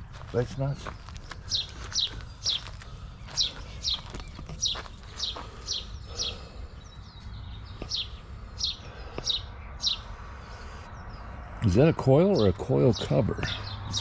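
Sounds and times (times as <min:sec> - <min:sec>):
small bird chirping: 0:00.5 - 0:11.2.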